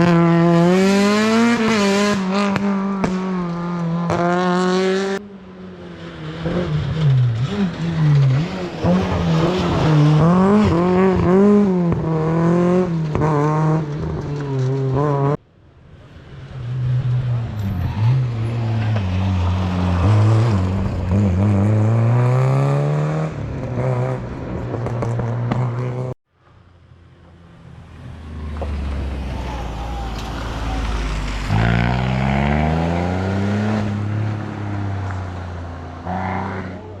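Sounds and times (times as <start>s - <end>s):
rally car engine at full throttle: 0.0s - 15.4s, 16.0s - 37.0s
faint engine: 24.5s - 33.9s.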